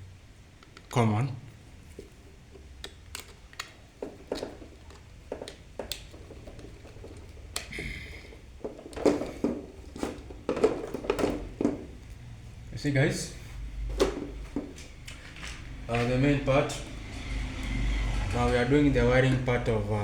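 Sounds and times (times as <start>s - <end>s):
clicks handling electrical wires: 2.0s - 12.2s, 13.9s - 16.4s.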